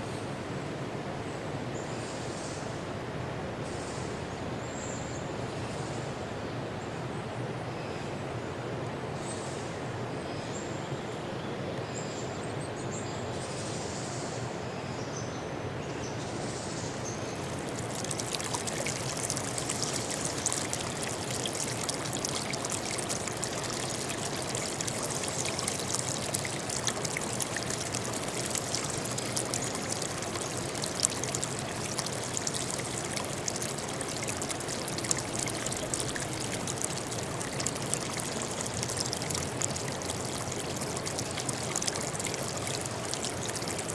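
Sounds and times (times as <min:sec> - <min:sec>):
water trickling and splashing: 0:17.0 - 0:43.9
low water rush: 0:17.2 - 0:43.9
crackling splash: 0:17.4 - 0:43.9.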